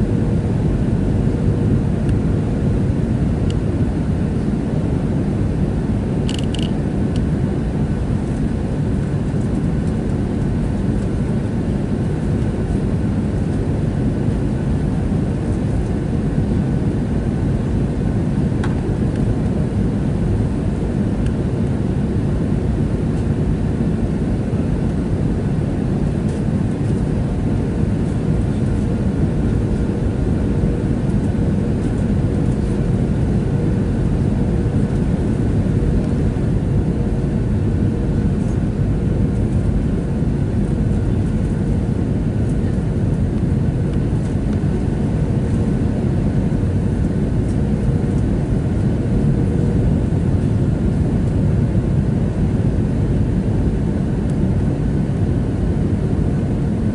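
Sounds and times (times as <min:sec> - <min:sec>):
faint steady hum: 0:00.0 - 0:56.9
jet engine drone in cabin: 0:00.0 - 0:56.9.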